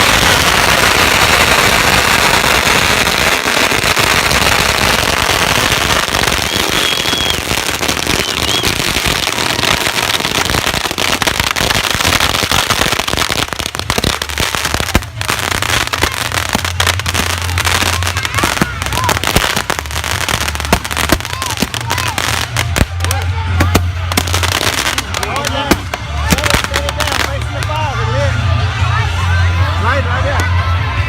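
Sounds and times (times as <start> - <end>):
fireworks crackling pops: 0.0 - 27.8.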